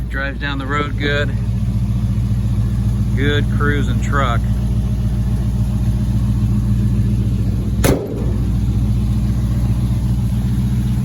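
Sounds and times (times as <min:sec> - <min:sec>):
car engine idling: 0:00.0 - 0:11.0
sharp engine knock: 0:07.8 - 0:09.0.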